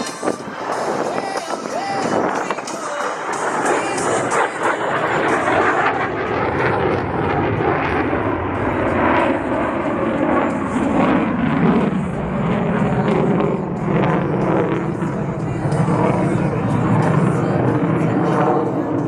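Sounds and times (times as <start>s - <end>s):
loud jet roar: 0.0s - 19.0s.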